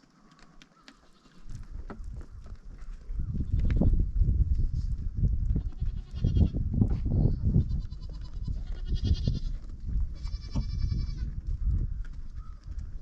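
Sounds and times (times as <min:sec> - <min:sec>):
goats bleating: 0:05.6 - 0:06.6, 0:07.6 - 0:09.6, 0:10.2 - 0:11.3.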